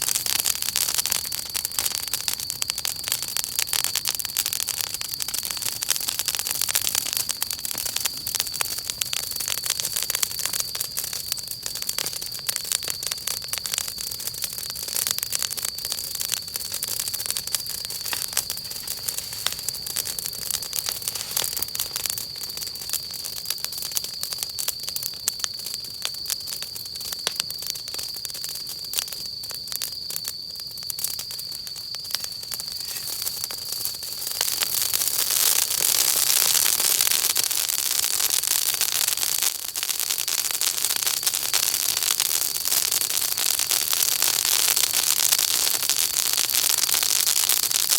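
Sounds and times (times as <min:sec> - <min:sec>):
wood fire crackling: 0:00.0 - 0:47.9
steady hiss: 0:17.0 - 0:23.0, 0:31.0 - 0:41.2.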